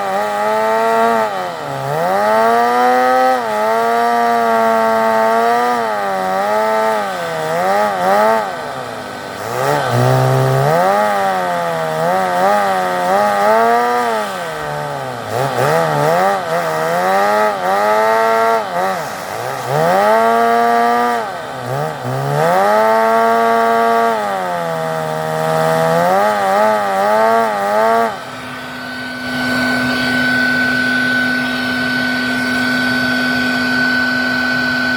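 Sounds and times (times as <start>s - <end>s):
car engine revving: 0.0s - 34.9s.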